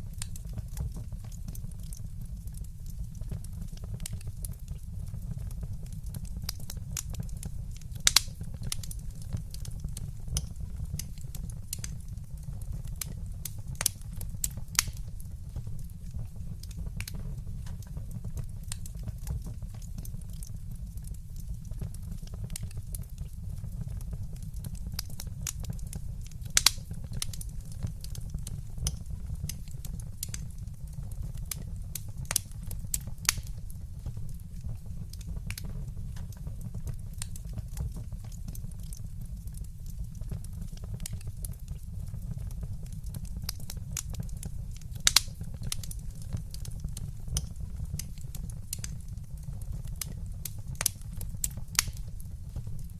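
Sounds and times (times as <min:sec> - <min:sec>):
fire popping: 0:00.0 - 0:52.9
wood fire crackling: 0:00.0 - 0:52.9
loud wood snaps: 0:08.0 - 0:08.9, 0:14.8 - 0:15.0, 0:26.6 - 0:27.4, 0:45.0 - 0:45.9, 0:51.8 - 0:52.0.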